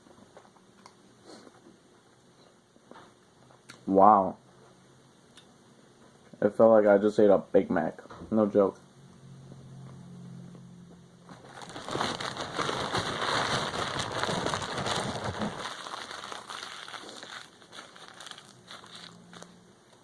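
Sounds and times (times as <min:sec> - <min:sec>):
paper wrapper crinkling: 0:11.3 - 0:20.0.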